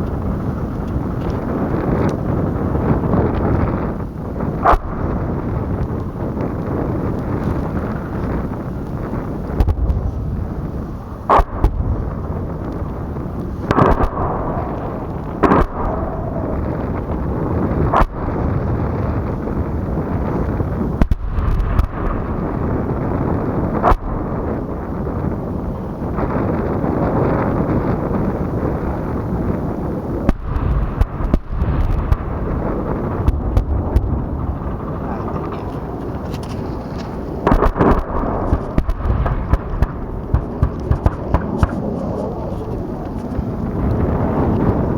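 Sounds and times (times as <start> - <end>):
helicopter rumble: 0.0 - 44.9
wind noise: 0.0 - 44.9
gunfire reports: 11.0 - 12.3, 37.4 - 43.3
gunshots: 11.3 - 11.9, 13.7 - 17.0, 37.4 - 42.8.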